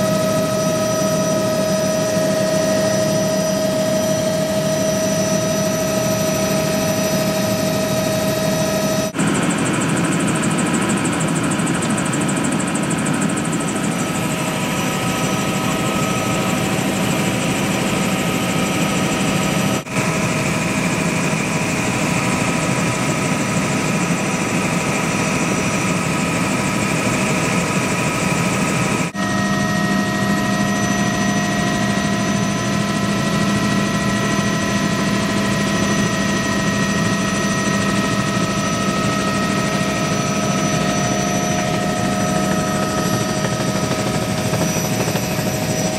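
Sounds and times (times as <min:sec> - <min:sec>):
helicopter rotor and engine: 0:00.0 - 0:45.9.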